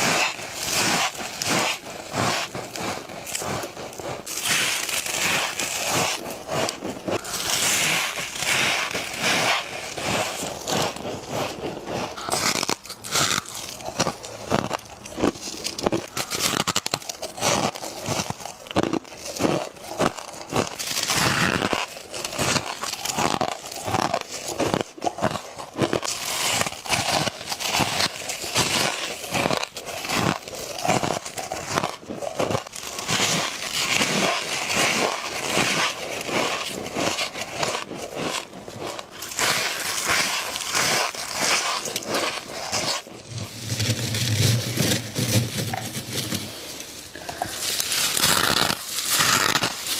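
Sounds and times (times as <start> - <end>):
ice crunching bites: 0.0 - 49.9.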